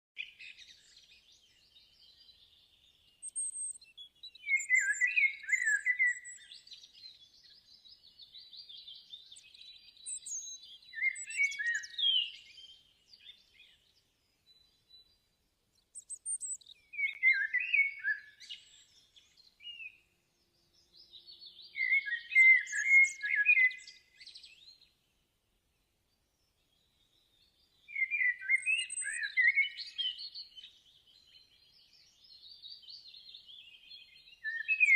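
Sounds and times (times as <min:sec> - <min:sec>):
birds chirping rapidly: 0:00.2 - 0:25.0.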